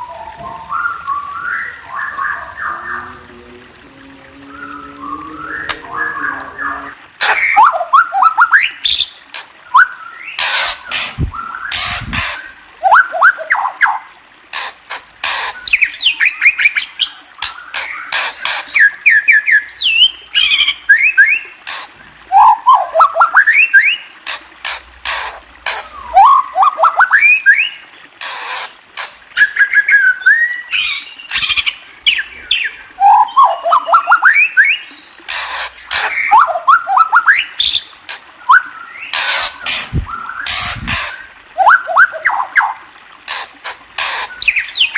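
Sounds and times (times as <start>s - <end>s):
bird whistling song: 0.0s - 3.0s, 9.7s - 10.4s, 12.8s - 14.0s, 18.7s - 21.4s, 22.3s - 24.0s, 26.0s - 27.8s, 29.4s - 35.2s, 36.1s - 42.8s
bird rising chirps: 4.0s - 7.0s.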